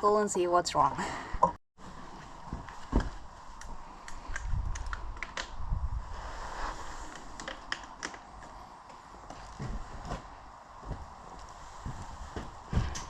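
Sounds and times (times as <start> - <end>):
footsteps clicking and scuffing: 8.4 - 13.0.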